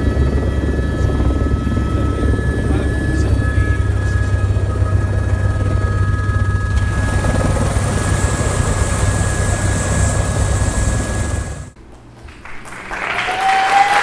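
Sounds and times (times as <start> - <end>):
helicopter rotor and turbine: 0.0 - 11.8.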